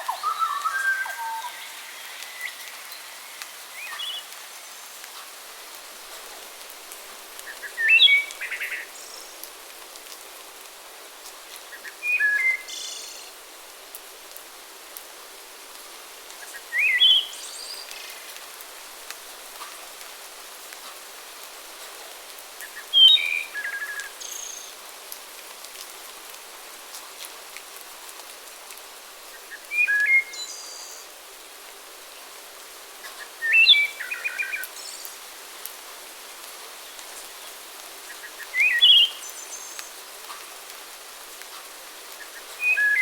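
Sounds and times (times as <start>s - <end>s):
songbirds chirping: 0.0s - 6.4s, 36.5s - 43.0s
steady background hiss: 0.0s - 43.0s.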